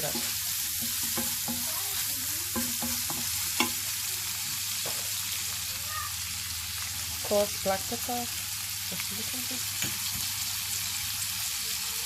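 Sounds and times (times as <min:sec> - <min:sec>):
chicken frying in a pan: 0:00.0 - 0:12.0.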